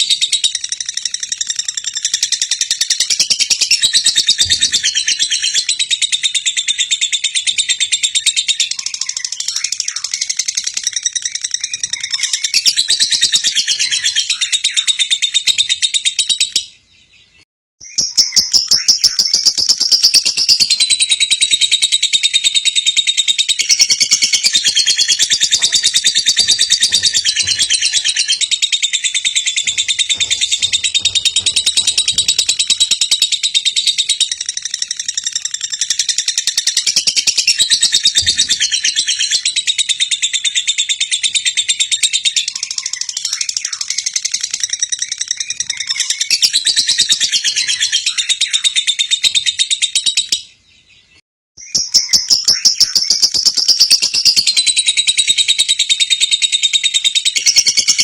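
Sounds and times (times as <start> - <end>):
bird chattering trill: 17.9 - 50.3.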